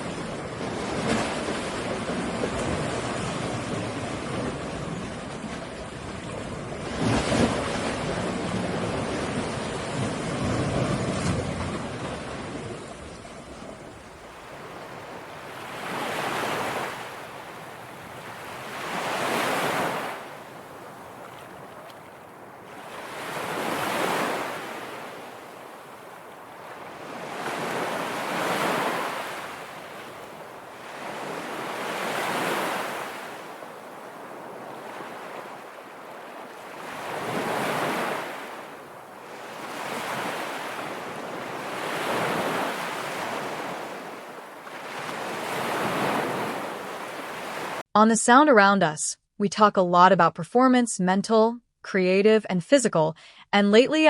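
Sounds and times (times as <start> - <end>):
ocean surf: 0.0 - 47.8
waves washing onto shore: 0.0 - 47.8
wind: 0.0 - 47.9.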